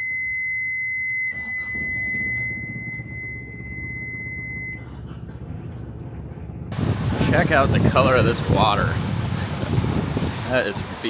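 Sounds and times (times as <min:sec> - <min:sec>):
high-pitched electronic beep: 0:00.0 - 0:04.8
low steady rumble: 0:00.0 - 0:11.0.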